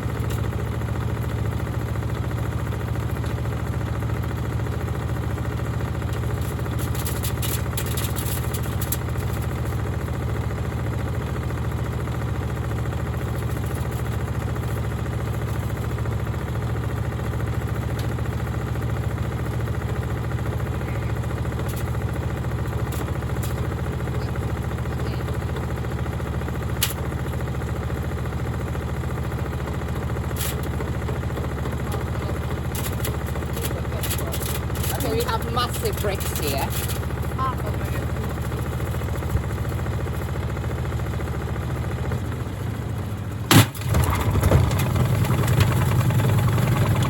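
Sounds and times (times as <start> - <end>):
washing machine humming: 0.0 - 47.0.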